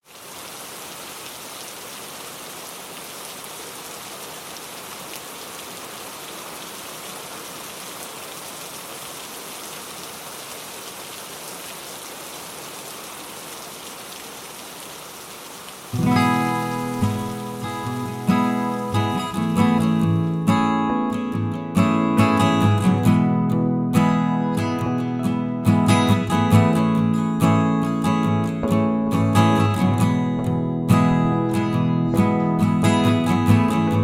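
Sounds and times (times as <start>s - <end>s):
rain pattering: 0.0s - 20.6s.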